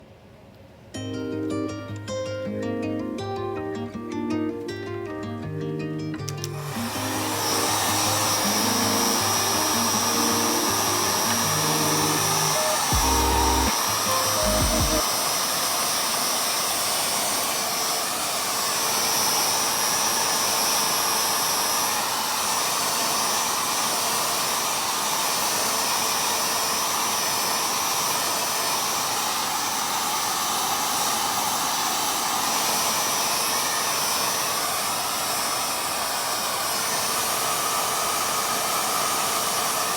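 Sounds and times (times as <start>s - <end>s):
plucked-string music: 1.0s - 7.4s, 8.1s - 15.0s
hair dryer blowing: 6.3s - 39.9s.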